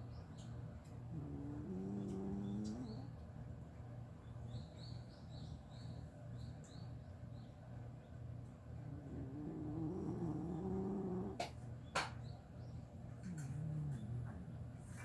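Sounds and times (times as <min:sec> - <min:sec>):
small birds chirping: 0:00.0 - 0:15.0
dog snoring: 0:01.1 - 0:03.1, 0:08.8 - 0:11.5, 0:13.2 - 0:15.0.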